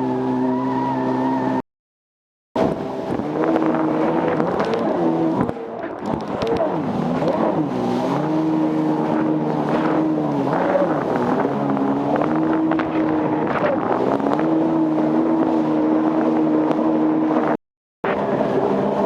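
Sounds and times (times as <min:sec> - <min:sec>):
jet ski engine revving: 0:00.0 - 0:01.6, 0:02.6 - 0:19.0.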